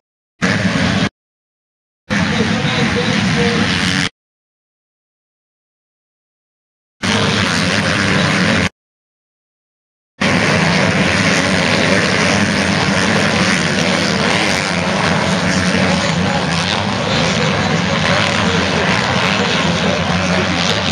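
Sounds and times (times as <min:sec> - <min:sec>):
motocross bike engines racing: 0:00.4 - 0:01.1, 0:02.1 - 0:04.1, 0:07.0 - 0:08.7, 0:10.2 - 0:20.9.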